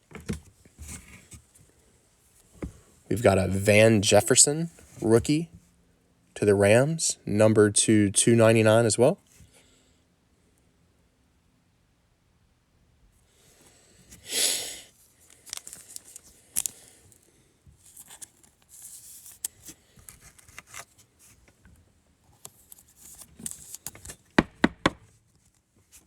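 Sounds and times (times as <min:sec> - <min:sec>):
plastic packaging rustling: 0:15.1 - 0:21.4
packaging tearing: 0:15.3 - 0:16.9
knocks on a table: 0:24.4 - 0:25.0.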